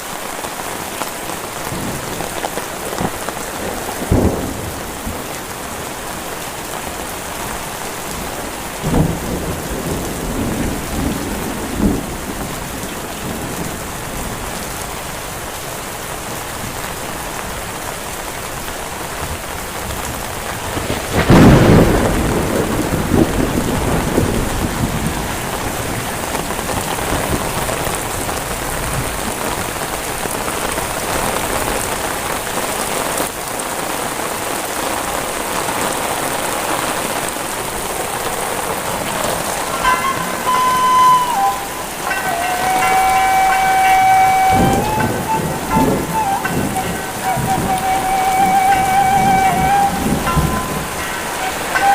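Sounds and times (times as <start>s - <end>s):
heavy rain: 0.0s - 51.9s
thunderclap rumbling: 1.6s - 6.3s, 7.2s - 14.6s, 19.2s - 29.3s, 37.1s - 51.9s.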